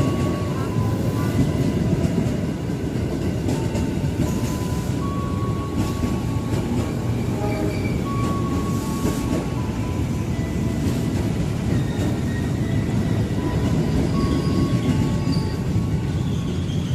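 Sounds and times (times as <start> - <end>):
rail-joint clacks: 0.0 - 16.9
train wheels rumbling on rail: 0.0 - 16.9
wheel-flange squeals: 4.2 - 16.9.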